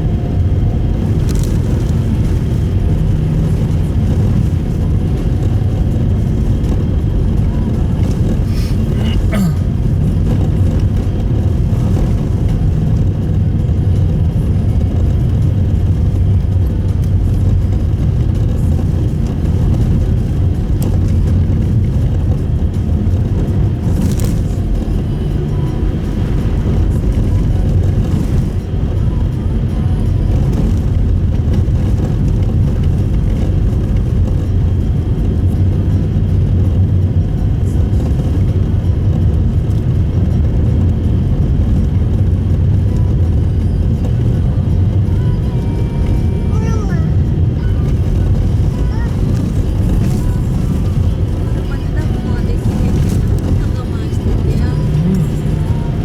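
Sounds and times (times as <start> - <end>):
car road and engine noise: 0.0 - 56.0.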